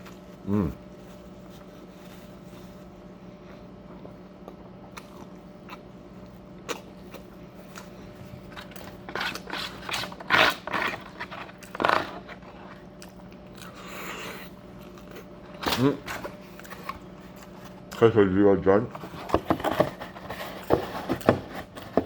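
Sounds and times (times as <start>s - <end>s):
person chewing: 0.0s - 15.6s.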